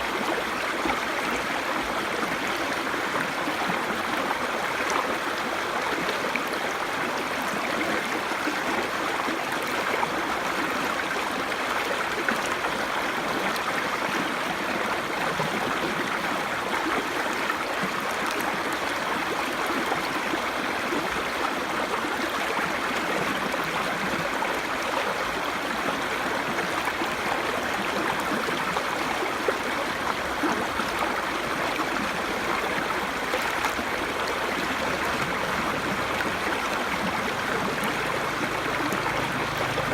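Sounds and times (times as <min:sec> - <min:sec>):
brook babbling: 0:00.0 - 0:39.9.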